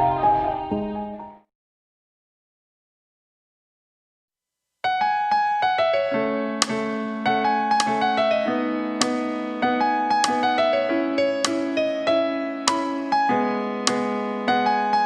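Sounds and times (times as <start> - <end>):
gentle piano music: 0.0 - 1.5, 4.9 - 15.0.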